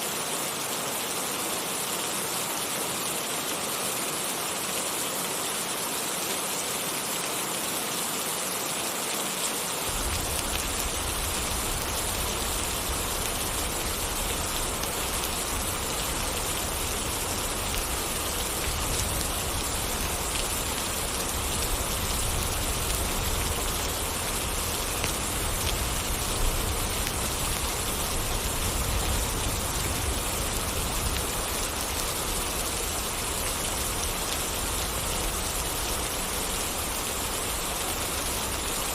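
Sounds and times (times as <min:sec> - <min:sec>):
rain pattering: 0:09.0 - 0:38.9.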